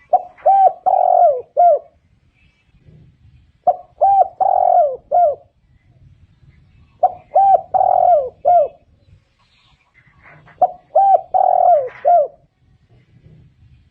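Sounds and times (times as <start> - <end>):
dove cooing: 0.0 - 2.0, 2.8 - 5.6, 7.0 - 8.9, 10.0 - 13.7.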